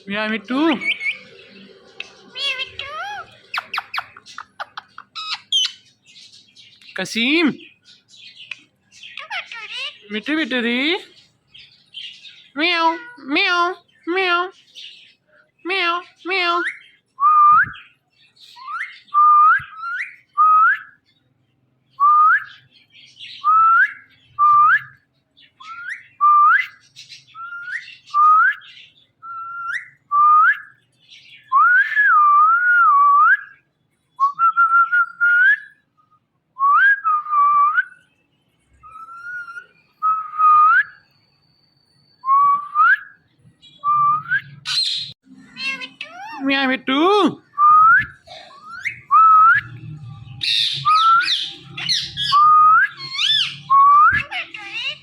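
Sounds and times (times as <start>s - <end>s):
parrot whistling: 43.8s - 46.5s, 47.5s - 55.0s.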